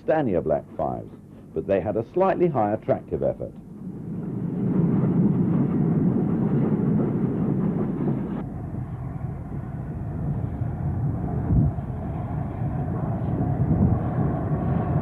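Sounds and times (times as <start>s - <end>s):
steam train running: 0.0s - 15.0s.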